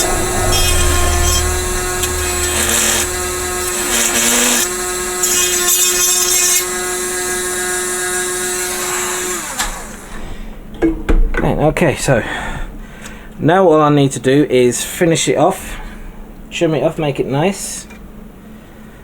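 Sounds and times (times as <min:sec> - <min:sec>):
electric sander running: 0:00.0 - 0:10.2.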